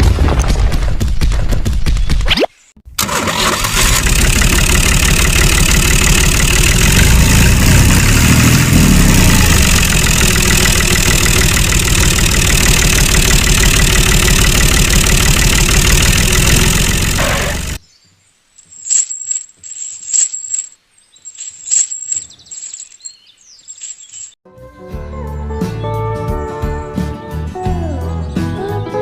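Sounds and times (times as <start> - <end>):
small engine running: 3.0 - 17.8.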